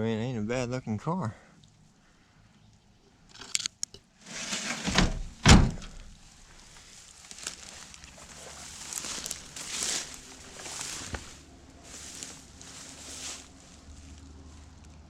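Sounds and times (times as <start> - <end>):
rustling: 4.2 - 15.0.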